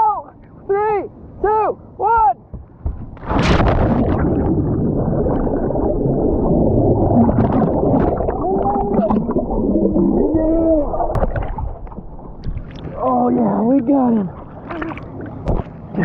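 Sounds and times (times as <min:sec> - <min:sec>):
underwater churning and bubbling: 0:02.6 - 0:16.0.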